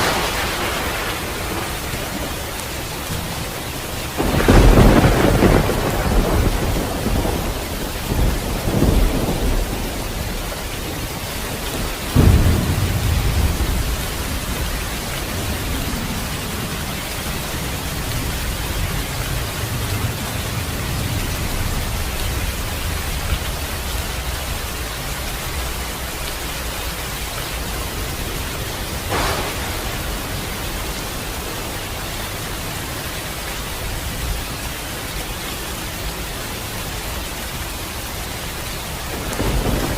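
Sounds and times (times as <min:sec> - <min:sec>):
thunderclap: 0:00.0 - 0:23.9, 0:24.8 - 0:34.5, 0:38.8 - 0:39.9
steady rain: 0:00.0 - 0:39.9
thunder rumbling: 0:00.0 - 0:39.9.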